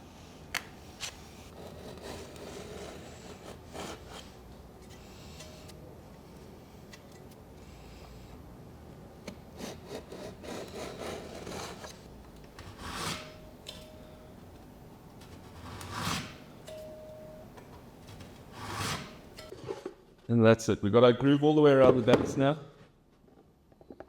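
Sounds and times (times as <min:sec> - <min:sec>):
hand tool scraping wood: 0:01.0 - 0:05.7, 0:09.3 - 0:13.4, 0:15.3 - 0:16.4, 0:18.1 - 0:19.4.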